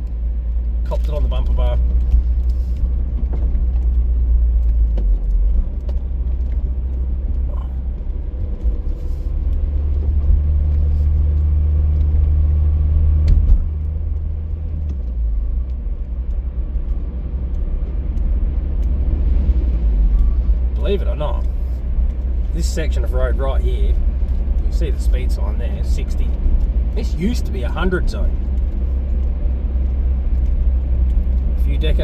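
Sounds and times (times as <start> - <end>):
car engine and road noise: 0.0 - 32.0.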